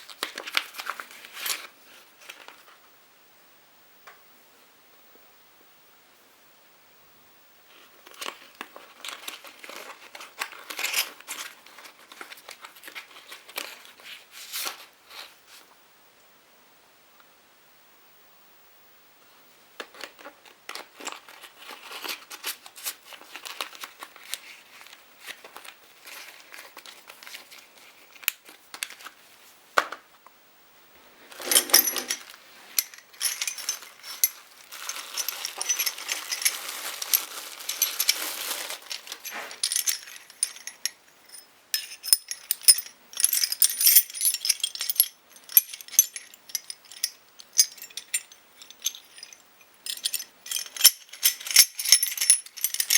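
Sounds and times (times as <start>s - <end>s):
packaging crinkling: 31.3s - 40.9s
metal parts clinking: 31.4s - 52.9s.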